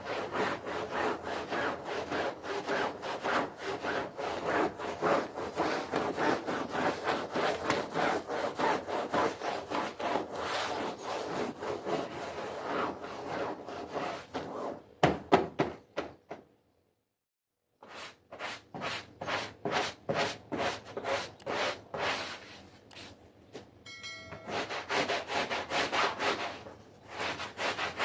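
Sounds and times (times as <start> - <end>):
brush scrubbing wet carpet: 0.0 - 14.8.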